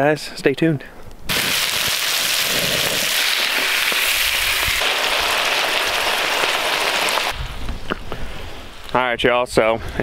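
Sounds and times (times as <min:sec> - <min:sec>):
food sizzling in a wok: 0:01.3 - 0:07.4.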